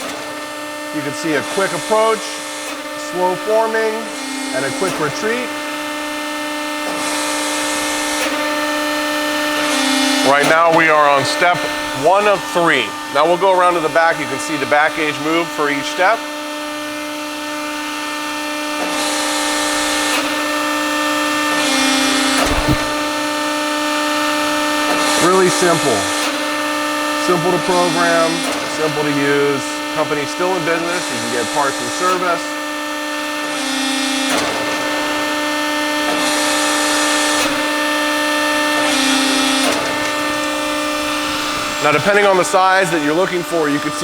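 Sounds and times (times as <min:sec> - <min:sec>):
hydraulic pump humming: 0:22.2 - 0:23.4.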